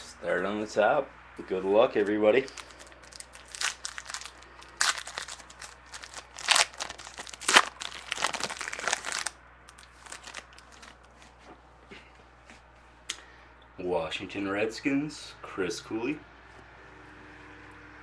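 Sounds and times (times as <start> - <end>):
wrapper tearing and crinkling: 2.5 - 11.1.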